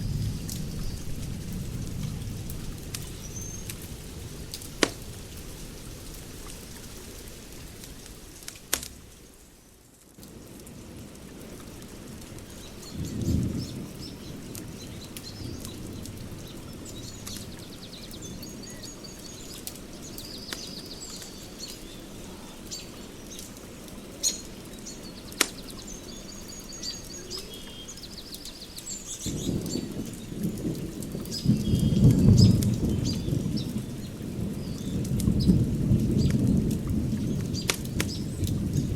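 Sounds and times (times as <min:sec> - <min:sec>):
sharp cracks: 0:02.4 - 0:05.2, 0:07.2 - 0:09.2, 0:25.4 - 0:25.7, 0:37.7 - 0:38.1
birds chirping and trilling: 0:12.4 - 0:30.6.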